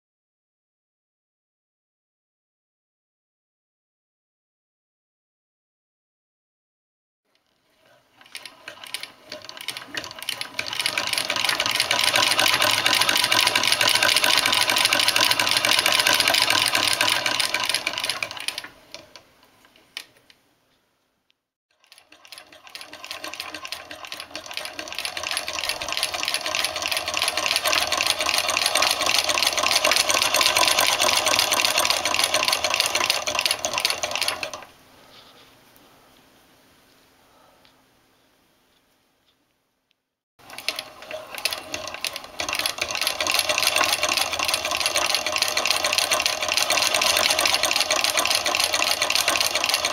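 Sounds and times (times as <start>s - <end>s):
sewing machine clattering: 7.8s - 19.2s, 21.8s - 34.7s, 40.4s - 49.9s.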